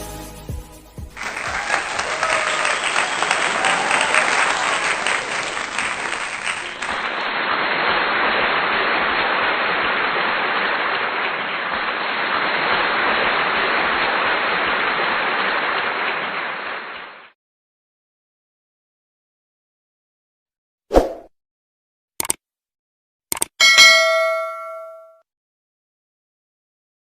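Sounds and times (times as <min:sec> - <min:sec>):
dense clapping: 0:01.2 - 0:12.9.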